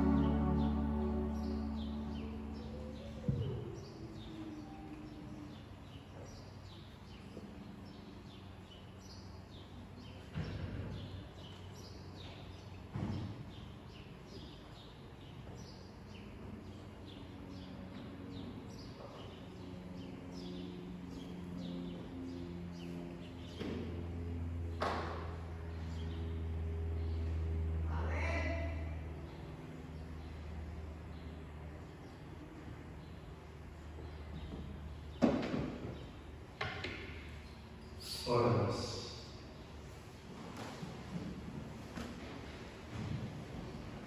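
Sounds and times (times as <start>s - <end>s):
faint steady low tone: 0.0s - 3.5s
small birds chirping: 0.0s - 23.7s.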